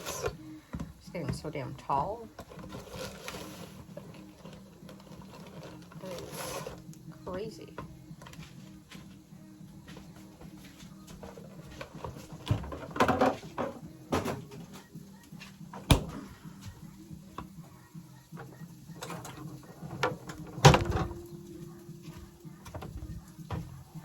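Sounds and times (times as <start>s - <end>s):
household things clattering: 2.3s - 6.9s, 9.9s - 14.9s, 18.4s - 21.4s.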